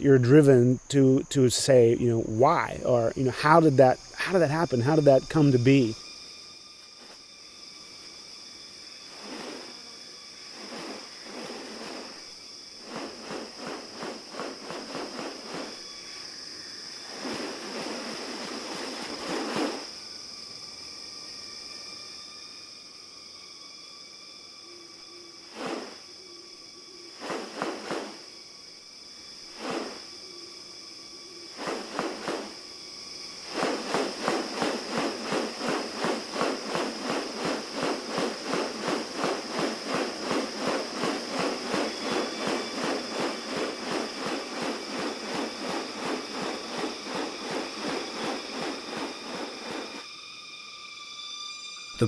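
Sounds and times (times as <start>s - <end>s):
insect drone: 0.0s - 52.0s.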